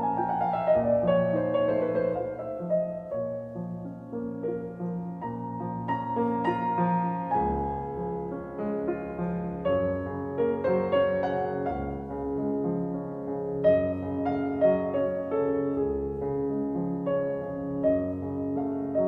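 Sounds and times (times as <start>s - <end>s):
gentle piano piece: 0.0s - 19.0s.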